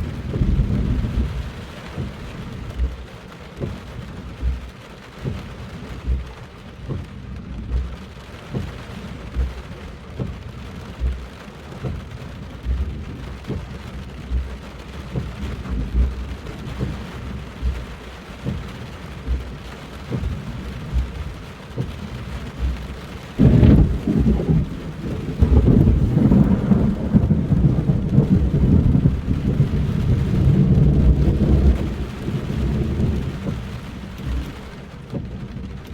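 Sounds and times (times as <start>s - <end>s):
loud thunderclap: 0.0s - 2.6s, 23.4s - 35.7s
dull low thumps: 0.0s - 35.9s
heavy rain: 0.0s - 35.9s.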